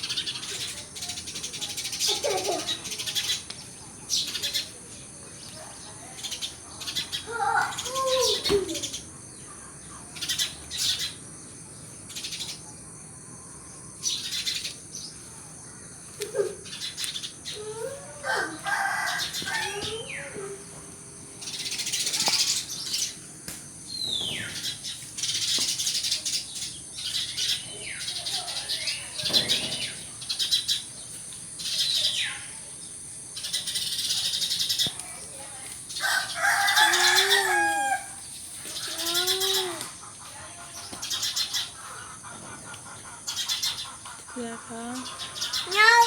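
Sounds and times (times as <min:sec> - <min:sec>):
sparrows chirping: 0:00.0 - 0:46.0
rooster crowing: 0:18.2 - 0:20.3, 0:36.0 - 0:38.2.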